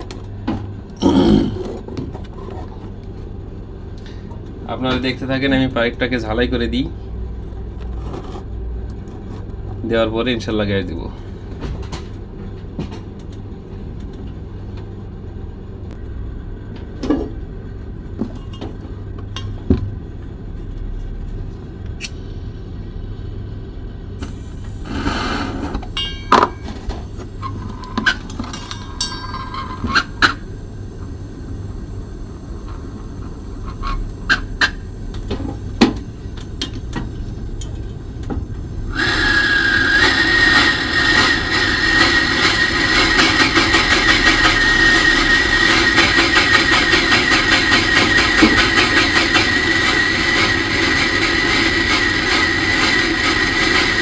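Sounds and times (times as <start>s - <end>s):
gas torch hissing and whistling: 24.1s - 26.1s, 27.0s - 54.0s.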